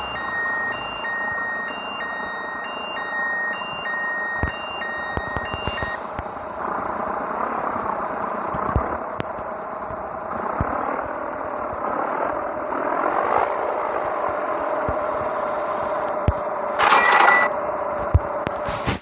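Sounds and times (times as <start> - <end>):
truck diesel engine droning: 0.0 - 18.6
short hiss: 18.7 - 19.0.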